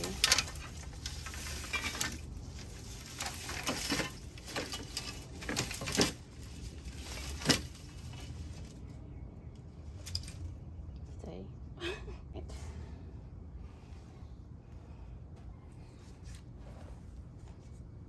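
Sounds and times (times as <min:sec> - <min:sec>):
vines rustling and crackling: 0:00.0 - 0:10.6.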